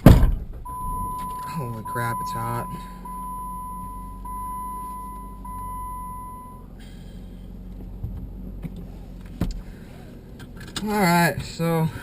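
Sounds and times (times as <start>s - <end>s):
engine idling hum: 0.0s - 12.0s
car warning chime: 0.6s - 6.8s.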